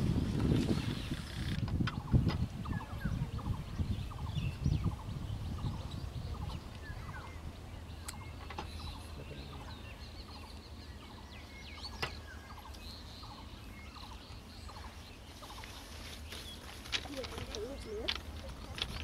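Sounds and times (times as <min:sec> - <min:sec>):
birds chirping and calling: 0:00.0 - 0:19.0.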